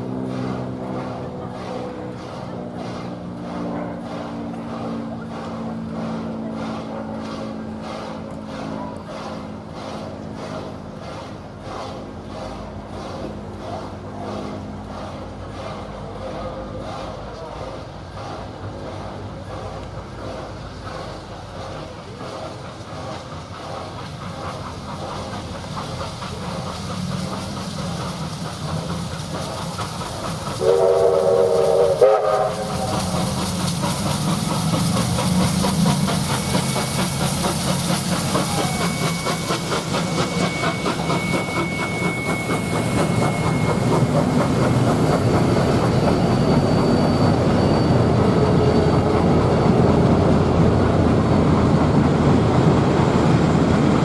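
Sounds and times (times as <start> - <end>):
steam train wheels clattering: 0.0 - 54.0
steam whistle: 30.6 - 33.2, 38.2 - 44.6.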